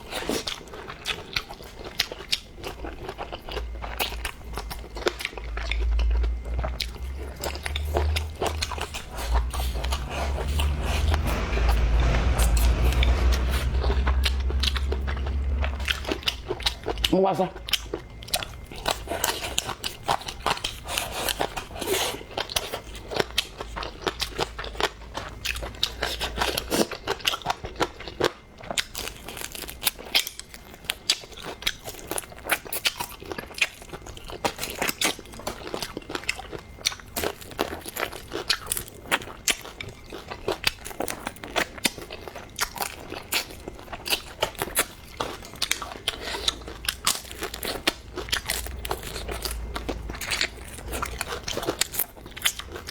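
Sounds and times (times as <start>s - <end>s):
crunchy food chewing: 0.0s - 52.9s.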